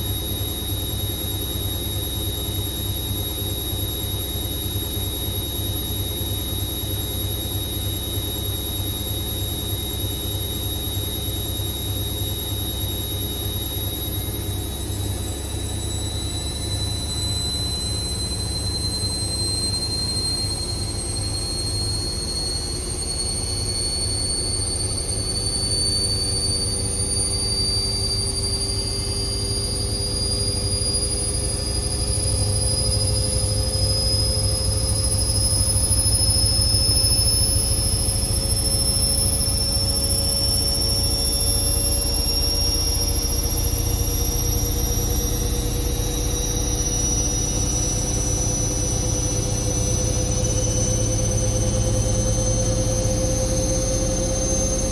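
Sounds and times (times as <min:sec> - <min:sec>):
washing machine motor whine: 0:00.0 - 0:54.9.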